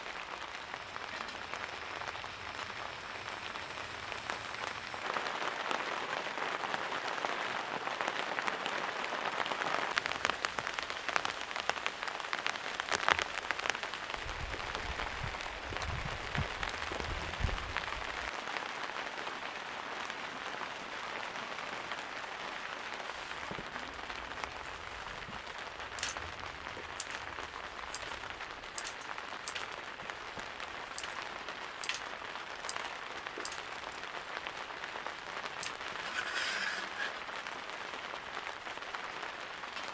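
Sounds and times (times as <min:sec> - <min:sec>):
rain falling: 0:00.0 - 0:39.9
water drips: 0:25.8 - 0:36.0.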